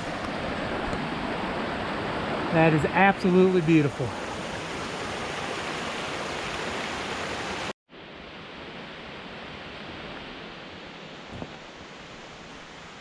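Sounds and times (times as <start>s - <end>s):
falling water rushing: 0.0s - 7.7s.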